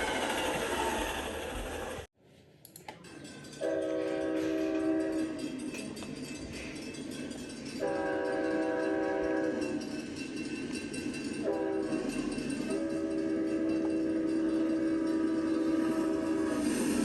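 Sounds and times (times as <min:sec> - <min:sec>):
rolling train rumble: 0:00.0 - 0:02.1, 0:03.1 - 0:17.0
locomotive air horn blasts: 0:03.6 - 0:05.4, 0:07.8 - 0:09.7, 0:11.4 - 0:16.6.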